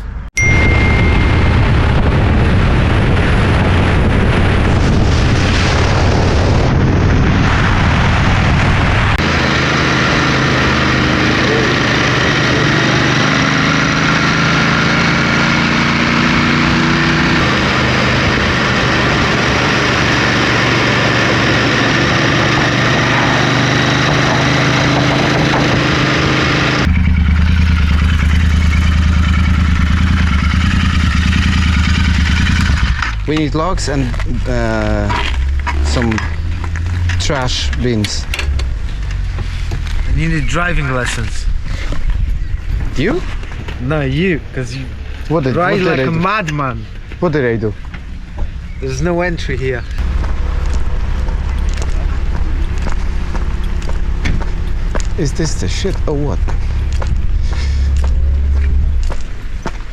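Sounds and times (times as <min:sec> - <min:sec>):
motorcycle engine cruising: 0:00.0 - 0:59.9
loud rushing noise: 0:00.5 - 0:14.0.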